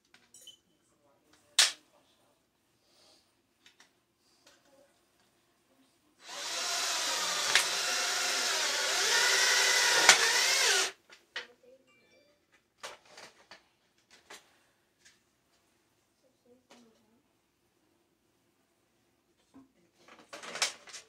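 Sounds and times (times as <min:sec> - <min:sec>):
power drill driving screw into metal: 0:06.2 - 0:11.0.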